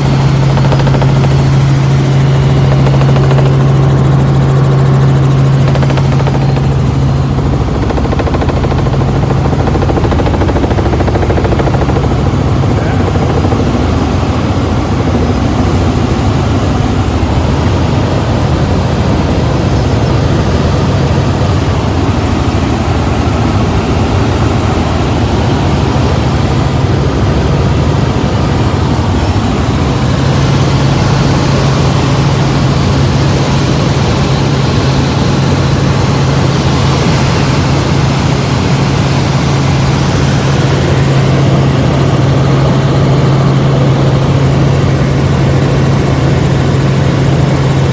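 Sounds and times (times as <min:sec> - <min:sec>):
helicopter engine and rotor drone: 0:00.0 - 0:47.9.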